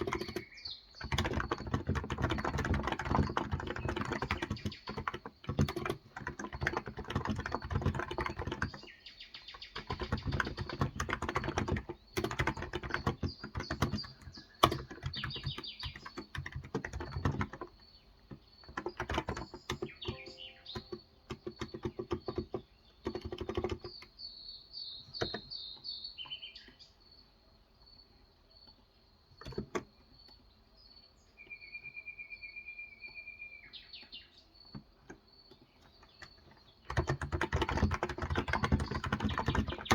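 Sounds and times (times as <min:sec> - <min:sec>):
keyboard typing: 0:00.0 - 0:24.2, 0:25.1 - 0:25.5, 0:29.4 - 0:29.9, 0:34.7 - 0:39.9
birds chirping: 0:00.0 - 0:39.9
bird trill: 0:18.6 - 0:22.7, 0:31.2 - 0:34.6.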